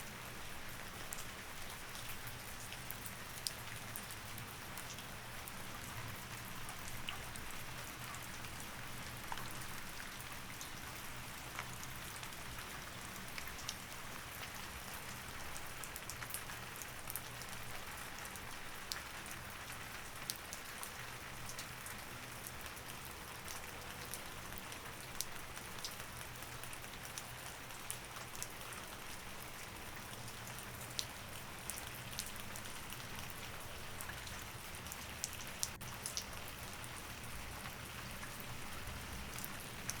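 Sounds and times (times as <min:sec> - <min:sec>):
steady rain: 0:00.0 - 0:40.0.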